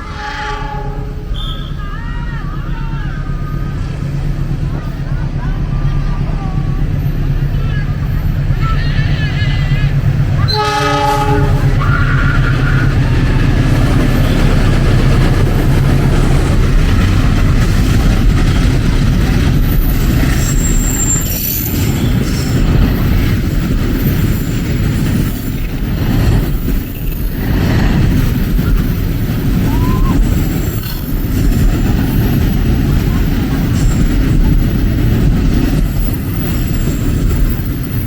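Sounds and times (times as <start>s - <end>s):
high metallic squeals: 0.0s - 2.8s, 19.8s - 22.6s
train wheels rumbling on rails: 0.0s - 38.0s.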